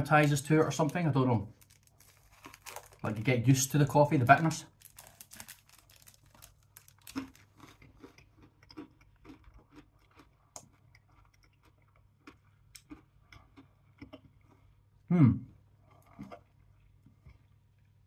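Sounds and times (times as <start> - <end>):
person chewing crunchy candy: 1.5 - 3.1, 4.7 - 14.9.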